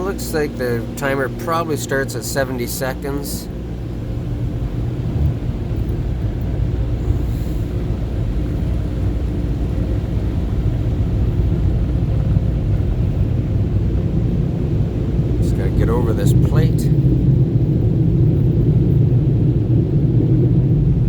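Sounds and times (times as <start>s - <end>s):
car wash air dryer roaring: 0.0s - 21.0s.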